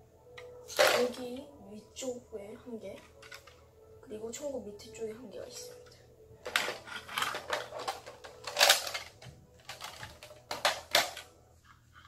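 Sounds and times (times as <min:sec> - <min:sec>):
plastic toy blaster clicks and rattles: 0:06.5 - 0:11.3.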